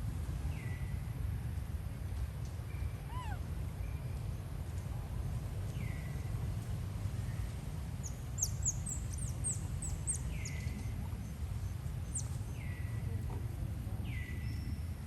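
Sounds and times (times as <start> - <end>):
steady low rumble: 0.0 - 15.0
arched meow-like animal call: 3.1 - 3.4
high whistling animal calls: 3.1 - 3.4.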